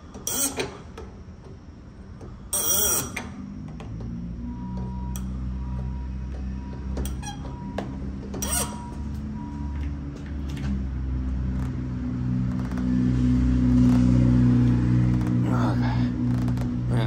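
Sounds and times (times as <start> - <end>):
steady low hum: 0.0 - 17.0
metal fittings squeaking: 0.2 - 0.8, 2.5 - 3.3, 7.0 - 7.6, 8.4 - 9.0.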